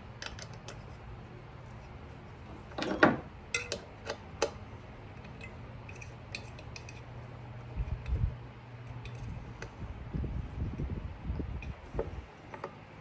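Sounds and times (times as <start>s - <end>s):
metal parts and tools clinking: 2.6s - 8.2s, 8.8s - 9.4s.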